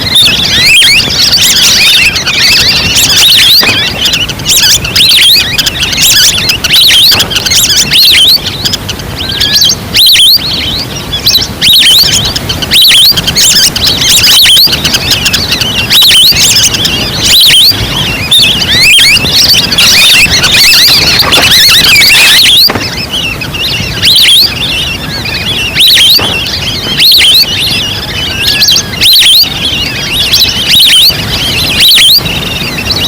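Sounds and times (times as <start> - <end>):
ducks chirping calls: 0.0 - 33.0.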